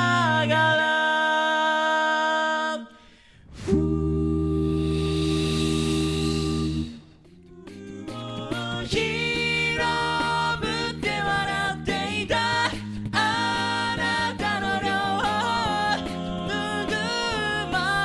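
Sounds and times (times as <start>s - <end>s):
a cappella group singing: 0.0s - 18.0s
vocal percussion beat: 3.6s - 18.0s.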